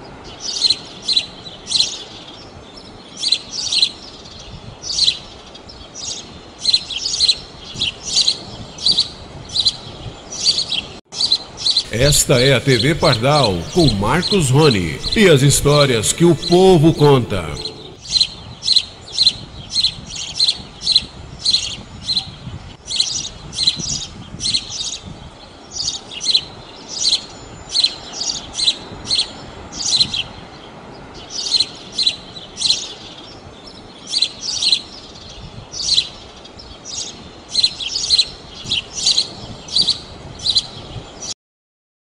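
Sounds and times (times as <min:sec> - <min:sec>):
faint background hiss: 0:11.9 - 0:18.0.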